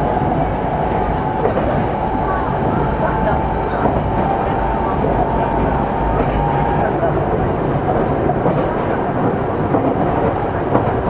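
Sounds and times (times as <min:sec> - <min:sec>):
electric train running: 0:00.0 - 0:11.0.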